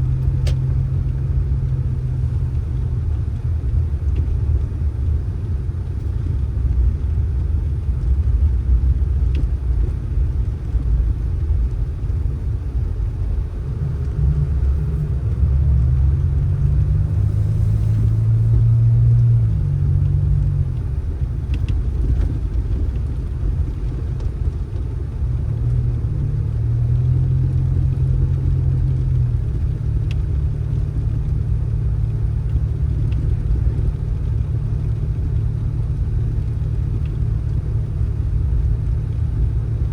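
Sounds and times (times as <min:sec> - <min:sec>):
vehicle engine and road drone: 0:00.0 - 0:39.9.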